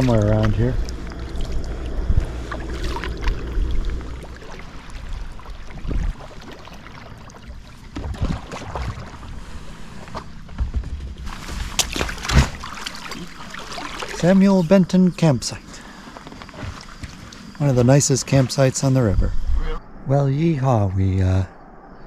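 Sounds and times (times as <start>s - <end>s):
wind on microphone: 0.0s - 6.3s, 19.0s - 20.2s
kayak paddle splashing: 0.0s - 10.5s, 11.2s - 14.7s, 15.7s - 18.6s.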